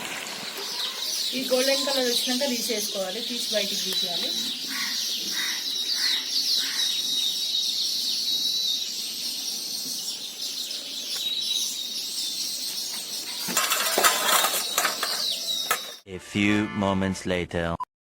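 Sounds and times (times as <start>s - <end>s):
hot oil sizzling and crackling: 0.0s - 6.7s.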